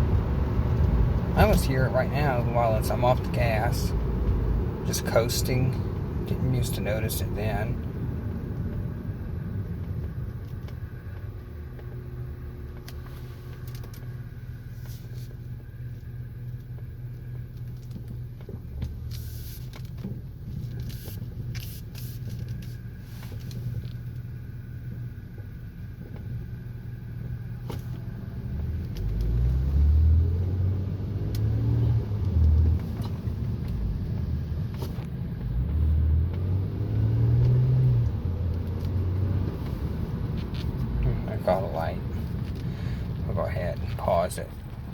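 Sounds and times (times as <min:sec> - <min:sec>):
car road and engine noise: 0:00.0 - 0:44.9
faint whine: 0:39.6 - 0:44.9.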